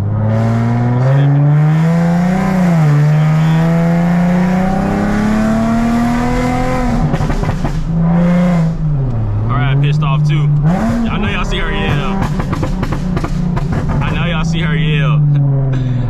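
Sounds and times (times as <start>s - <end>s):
car engine revving: 0.0s - 16.0s
exhaust pops and crackles: 6.8s - 15.9s.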